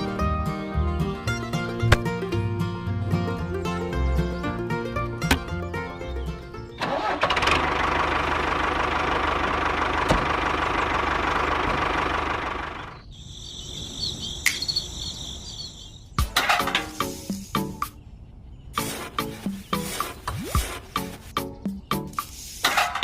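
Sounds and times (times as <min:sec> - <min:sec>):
background music: 0:00.0 - 0:06.9, 0:18.8 - 0:22.3.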